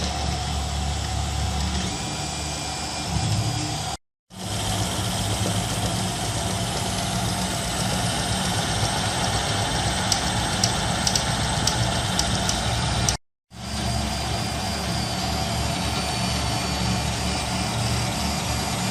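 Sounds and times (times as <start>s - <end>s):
printer motors and fans humming: 0.0s - 18.9s.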